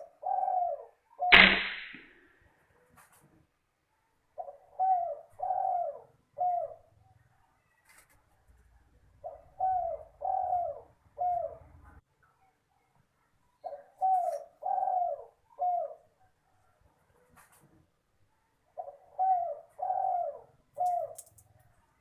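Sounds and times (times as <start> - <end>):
dove cooing: 0.0 - 1.3, 4.4 - 7.8, 9.2 - 12.0, 13.6 - 16.8, 18.8 - 21.3.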